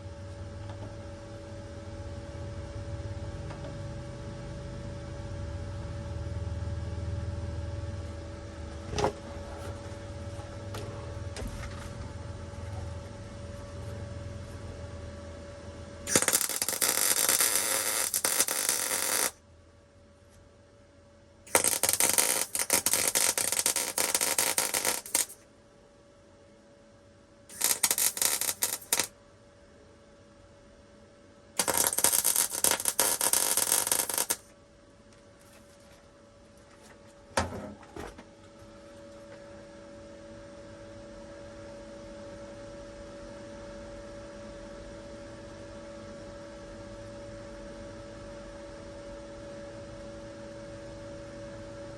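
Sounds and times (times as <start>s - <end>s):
steady hum: 0.0s - 51.9s
welder arc crackle: 16.1s - 19.4s, 21.5s - 25.4s, 27.5s - 29.1s, 31.6s - 34.5s.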